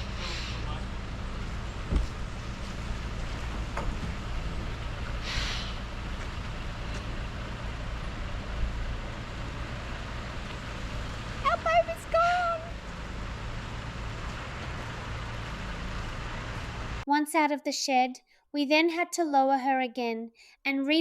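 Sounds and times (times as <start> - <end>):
truck engine running: 0.0 - 17.0
short hiss: 5.2 - 5.8.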